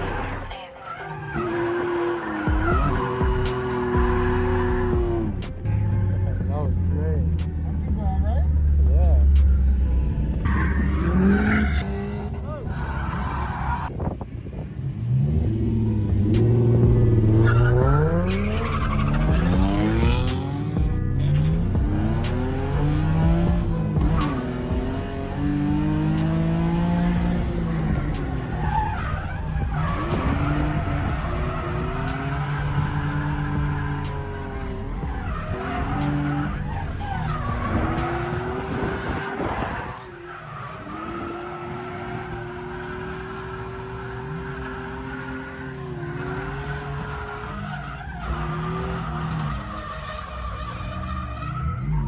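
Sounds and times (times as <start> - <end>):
tyres skidding and squealing: 0.0 - 52.0
car engine revving hard: 1.4 - 5.5, 15.0 - 51.1
tyres squealing: 16.6 - 20.2.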